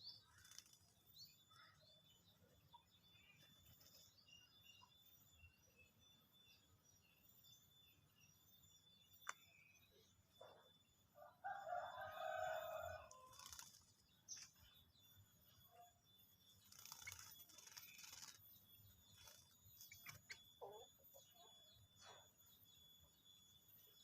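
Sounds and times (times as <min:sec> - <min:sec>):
rooster crowing: 0:11.2 - 0:13.5.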